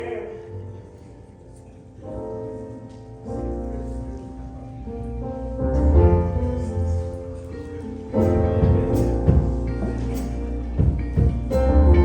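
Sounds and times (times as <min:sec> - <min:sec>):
keyboard chords: 0:00.0 - 0:12.0
deep bass line: 0:05.0 - 0:07.5, 0:08.2 - 0:12.0.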